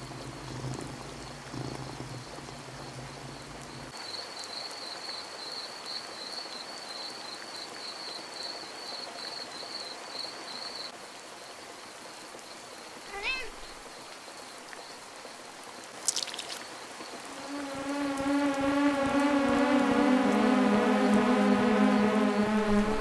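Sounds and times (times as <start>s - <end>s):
insect trilling: 0.0s - 3.9s, 16.0s - 16.7s
low droning: 0.0s - 3.9s, 17.2s - 23.0s.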